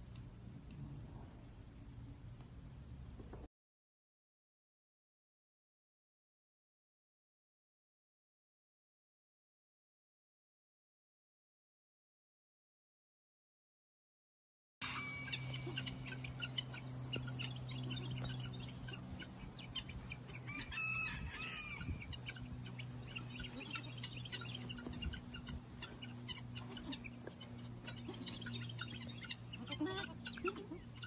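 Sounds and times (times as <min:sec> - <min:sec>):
steady low hum: 0:00.0 - 0:03.5, 0:14.8 - 0:31.0
bird chirps: 0:14.8 - 0:20.8, 0:22.1 - 0:31.0
drawn-out bird call: 0:14.8 - 0:31.0.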